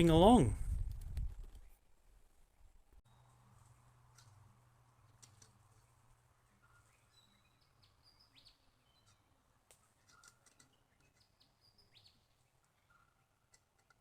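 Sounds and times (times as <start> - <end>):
bird chirps: 5.8 - 9.4, 10.0 - 13.5.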